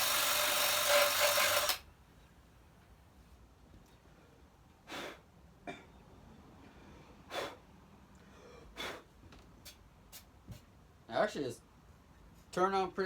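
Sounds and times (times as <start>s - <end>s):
quiet breath puffs: 6.6s - 10.7s.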